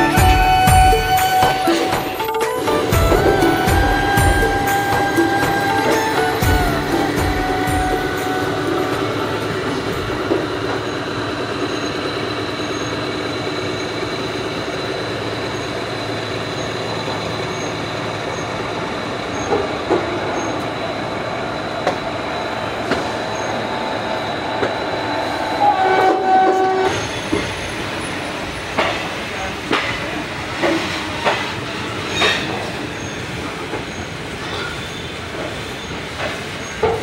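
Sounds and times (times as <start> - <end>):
train horn: 0.0 - 2.2, 2.8 - 9.4, 25.4 - 27.1
train rolling rumble: 0.0 - 37.0.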